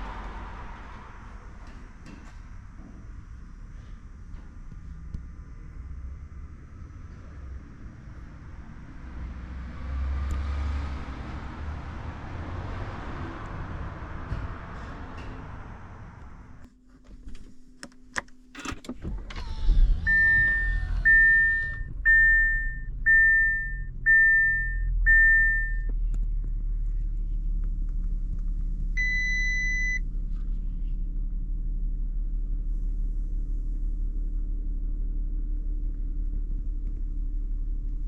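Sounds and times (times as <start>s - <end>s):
car engine starting and idling: 0.0s - 38.0s
short warning chimes: 20.1s - 25.9s.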